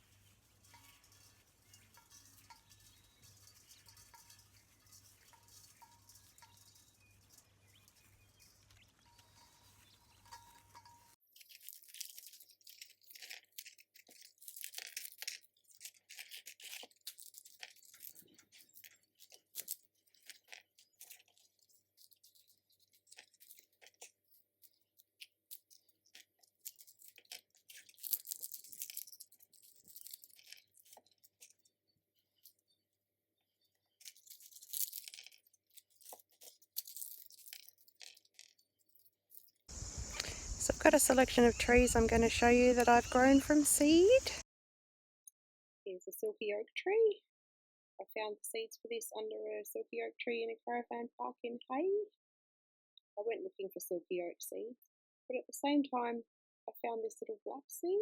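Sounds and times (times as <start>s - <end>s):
dry crackling and rustling: 0.0s - 31.7s, 33.8s - 44.4s.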